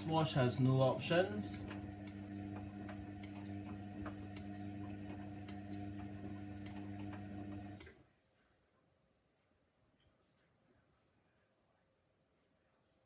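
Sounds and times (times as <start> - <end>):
washing machine electric hum: 0.0 - 8.0.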